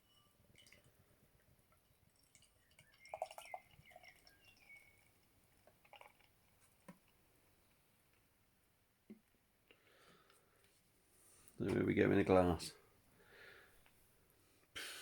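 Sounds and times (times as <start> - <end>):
beer pouring into a glass: 0.0 - 7.0.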